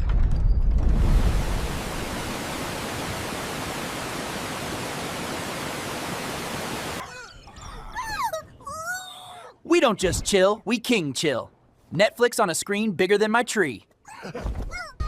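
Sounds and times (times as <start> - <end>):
steady rushing hiss: 1.1 - 7.0.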